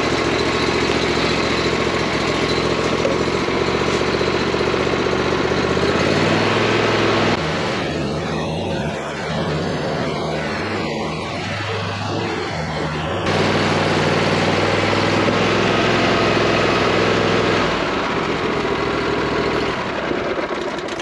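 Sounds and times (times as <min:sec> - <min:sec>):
brush cutter engine running: 0:00.0 - 0:21.0.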